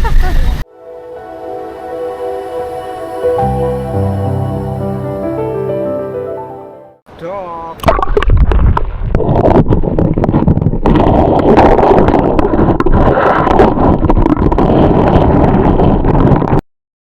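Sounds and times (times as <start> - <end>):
wind buffeting microphone: 8.2 - 16.6.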